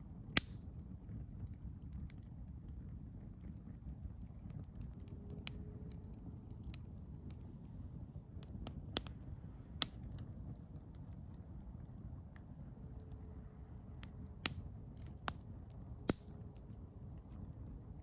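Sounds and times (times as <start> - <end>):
campfire crackling: 0.0 - 18.0
loud pops of burning wood: 0.3 - 0.6, 14.0 - 16.4.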